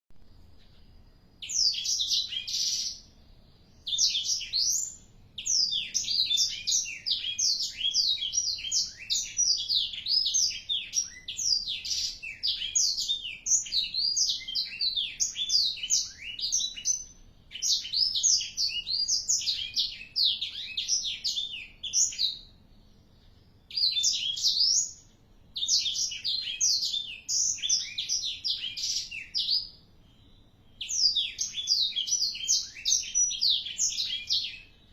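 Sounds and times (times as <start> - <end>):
bird singing high twittering notes: 0.4 - 34.9.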